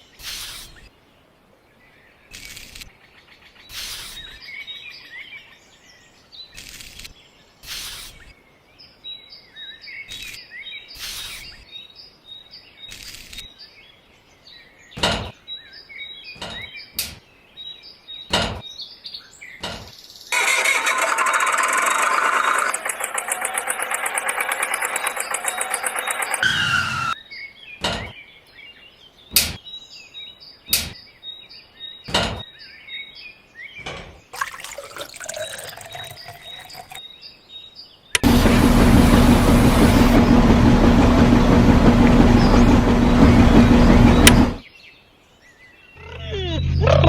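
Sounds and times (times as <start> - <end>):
small birds chirping: 35.2 - 38.2
loud pulsing buzz: 38.2 - 44.6.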